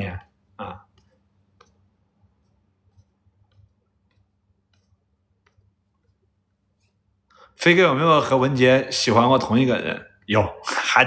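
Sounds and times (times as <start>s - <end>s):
faint irregular clicks: 0.9s - 7.4s.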